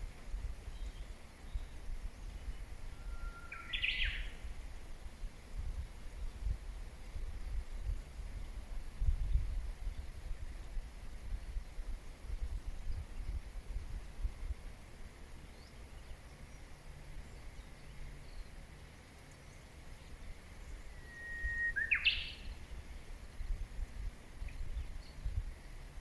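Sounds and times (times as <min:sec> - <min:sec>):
low steady rumble: 0:00.0 - 0:26.0
bird whistled song: 0:00.7 - 0:04.4, 0:20.6 - 0:22.7
faint bird chirps: 0:00.7 - 0:04.5, 0:19.3 - 0:23.2.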